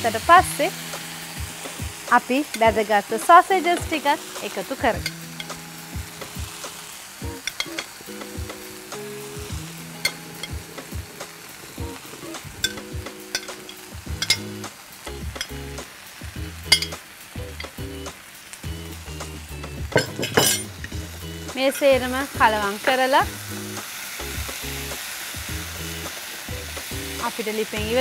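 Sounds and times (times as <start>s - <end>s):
food sizzling in frying pan: 0.0s - 28.0s
spoon scraping pan: 7.4s - 8.0s, 10.0s - 10.7s, 12.2s - 14.6s
clattering: 19.9s - 20.7s.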